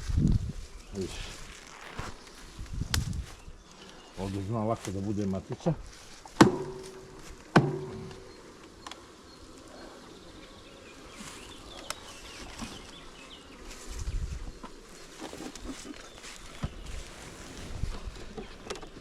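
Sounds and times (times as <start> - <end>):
honeybees buzzing: 5.2 - 19.0
sharp knocks: 6.4 - 8.2.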